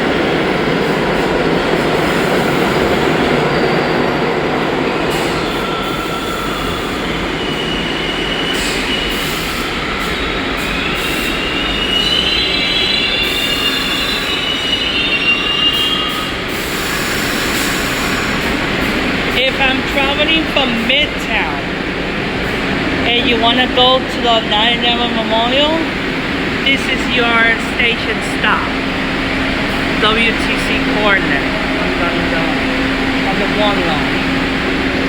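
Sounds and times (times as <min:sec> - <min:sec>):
subway train wheels rumbling: 0:00.0 - 0:35.0
steel wheels squealing: 0:00.9 - 0:23.0.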